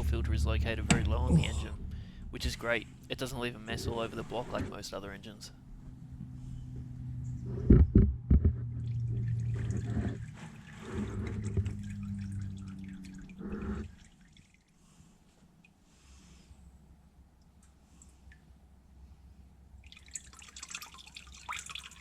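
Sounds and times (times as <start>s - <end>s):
steady low hum: 0.0s - 14.3s
sharp knocks: 7.6s - 8.8s
oil splashing into a pan: 19.8s - 22.0s.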